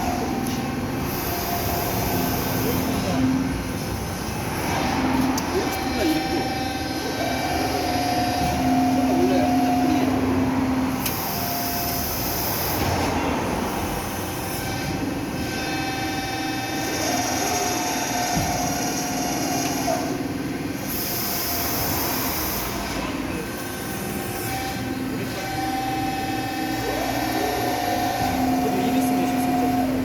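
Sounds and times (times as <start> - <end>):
factory machinery drone: 0.0 - 30.0
whining tones: 0.0 - 30.0.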